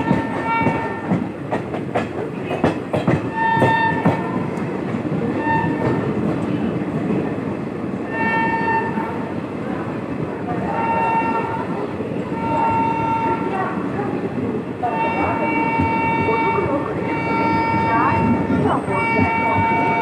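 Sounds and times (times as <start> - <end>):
train horn blasts: 0.0 - 1.2, 3.3 - 4.5, 5.3 - 6.4, 8.1 - 9.2, 10.6 - 13.6, 14.8 - 20.0
clickety-clack over rail joints: 0.0 - 7.5, 11.3 - 20.0
train rumbling on rails: 0.0 - 20.0.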